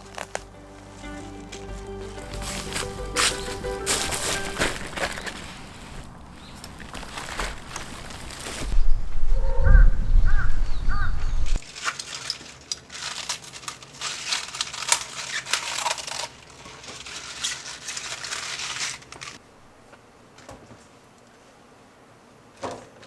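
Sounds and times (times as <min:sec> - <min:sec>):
low rumble: 0:00.0 - 0:11.6
dry crackling and crunching: 0:00.0 - 0:20.0
crow cawing: 0:09.3 - 0:11.5.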